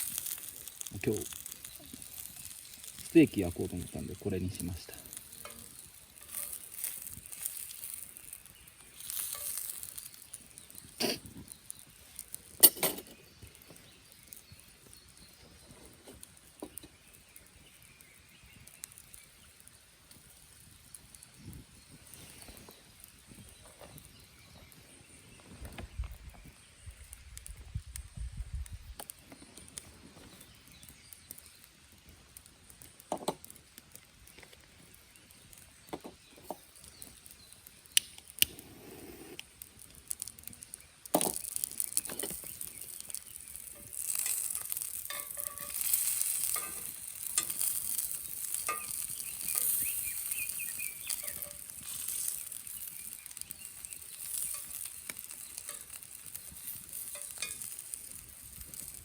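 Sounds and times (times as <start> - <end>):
meat sizzling on grill pan: 0.0 - 22.4, 35.8 - 59.0.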